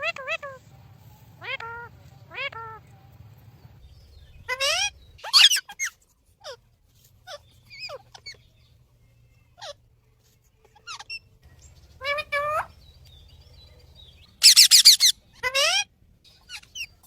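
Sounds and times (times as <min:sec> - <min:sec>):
parrot shrill calls: 0:04.4 - 0:06.6, 0:14.4 - 0:17.0.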